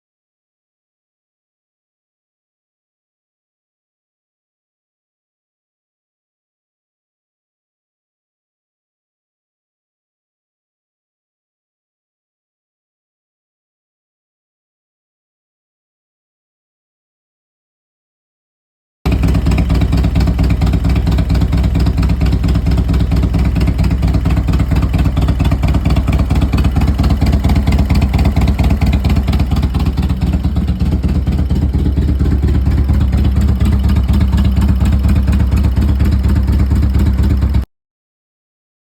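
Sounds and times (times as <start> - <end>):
motorcycle engine running: 19.1 - 37.7.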